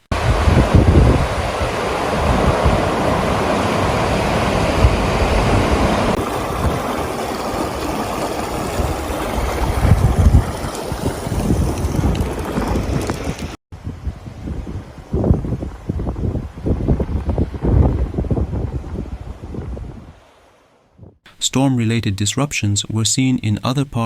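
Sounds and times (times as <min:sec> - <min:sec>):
floodwater rushing: 0:00.0 - 0:13.6
wind gusting on microphone: 0:00.1 - 0:21.2.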